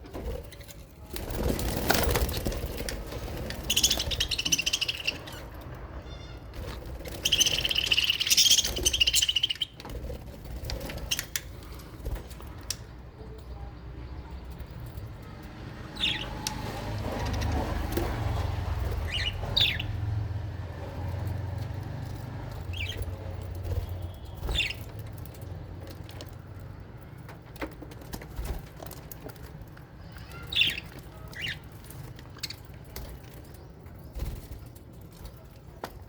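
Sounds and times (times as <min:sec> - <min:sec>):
parrots twittering: 0:03.1 - 0:09.8, 0:15.9 - 0:18.2, 0:18.9 - 0:20.0.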